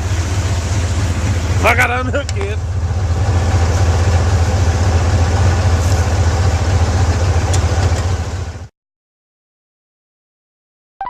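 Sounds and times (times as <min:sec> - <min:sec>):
pickup engine idling: 0:00.0 - 0:08.7.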